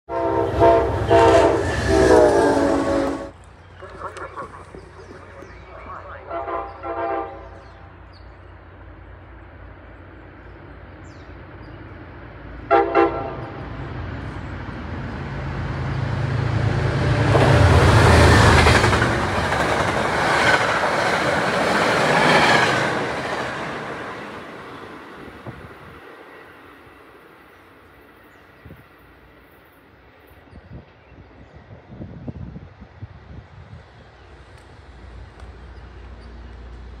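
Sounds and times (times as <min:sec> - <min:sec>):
train horn blast: 0:00.1 - 0:03.4, 0:06.2 - 0:07.8, 0:12.6 - 0:13.7
diesel locomotive engine rumble: 0:00.1 - 0:37.0.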